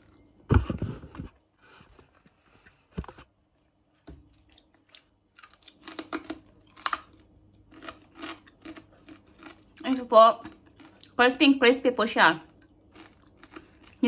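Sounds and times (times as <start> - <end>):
crispy pork crackling crunching: 4.4 - 11.4, 12.5 - 14.0.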